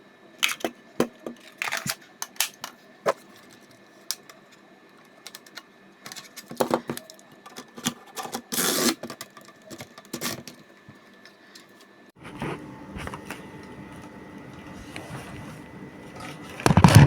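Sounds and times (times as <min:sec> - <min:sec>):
plastic clicks and clatter: 0:00.4 - 0:11.8.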